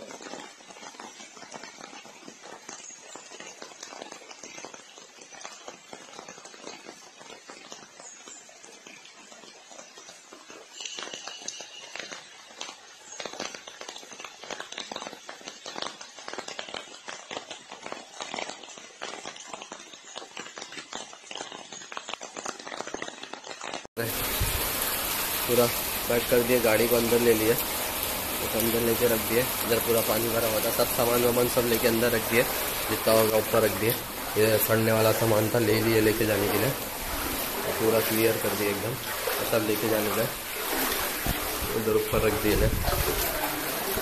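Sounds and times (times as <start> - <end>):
heavy rain pattering: 12.2 - 44.0.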